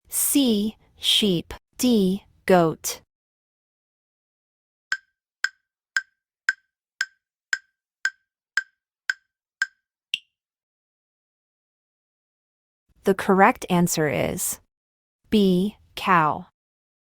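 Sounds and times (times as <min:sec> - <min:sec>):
wood-block-like timer ticks: 0:04.9 - 0:10.3.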